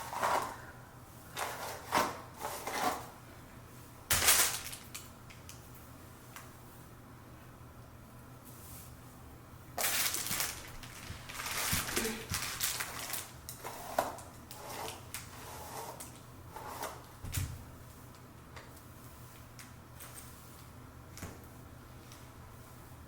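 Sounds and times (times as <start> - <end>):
wig rustling: 9.8 - 13.9.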